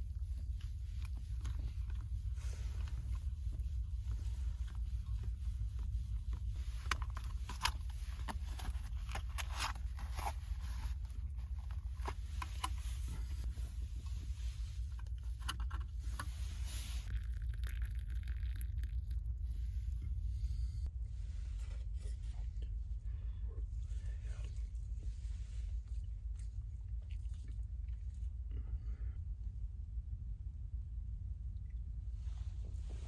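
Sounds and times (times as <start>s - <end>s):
rustling: 0.0s - 18.4s
steady low rumble: 0.0s - 33.0s.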